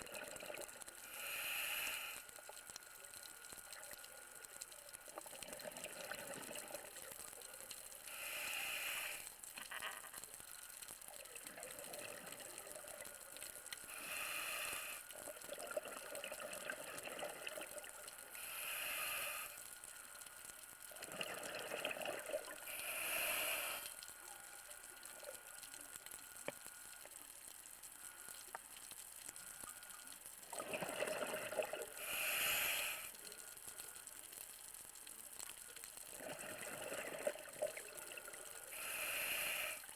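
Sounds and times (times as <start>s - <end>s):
scuba regulator hiss: 1.0s - 2.2s, 8.1s - 9.3s, 13.9s - 15.1s, 18.4s - 19.6s, 22.7s - 24.0s, 32.0s - 33.2s, 38.7s - 39.9s
exhaled bubbles rushing: 30.5s - 31.9s, 36.2s - 38.3s.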